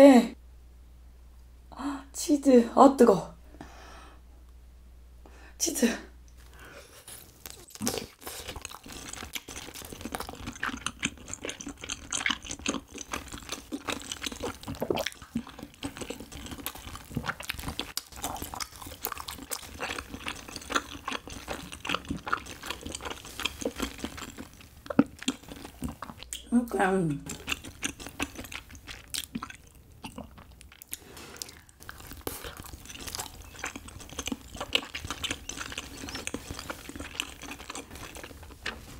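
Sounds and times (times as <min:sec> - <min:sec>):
wet chewing with sticky clicks: 0:07.1 - 0:26.5, 0:27.2 - 0:38.9.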